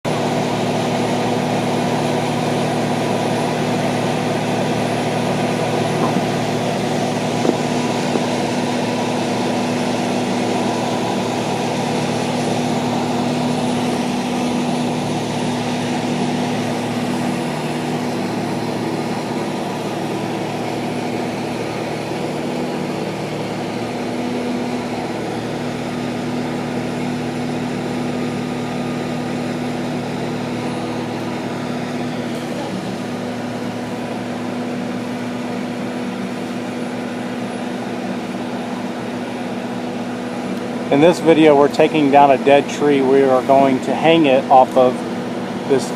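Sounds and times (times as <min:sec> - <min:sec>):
engine humming steadily: 0:00.0 - 0:45.9.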